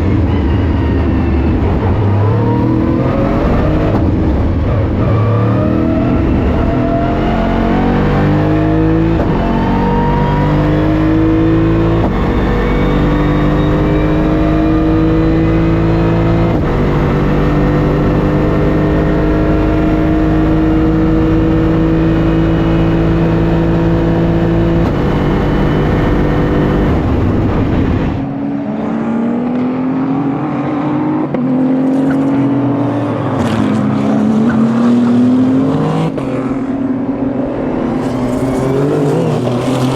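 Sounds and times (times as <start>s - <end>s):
race car engine accelerating: 0.0s - 39.9s
race car engine revving: 0.0s - 39.9s
engine crackles: 37.7s - 39.9s.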